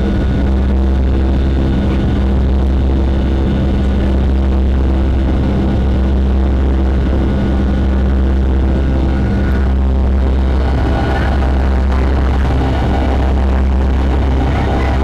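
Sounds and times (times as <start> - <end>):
jet engines droning in cabin: 0.0 - 15.0.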